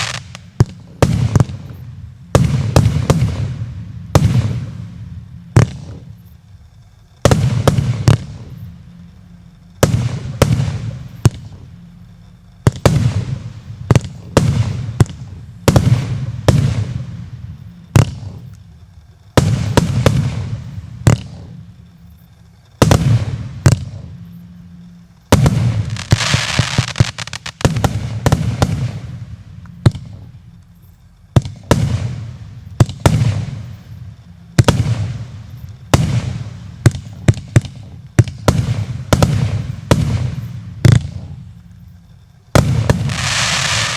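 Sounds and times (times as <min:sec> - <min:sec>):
crackling hiss: 0:00.0 - 0:43.9
firework cake bangs: 0:34.6 - 0:41.4.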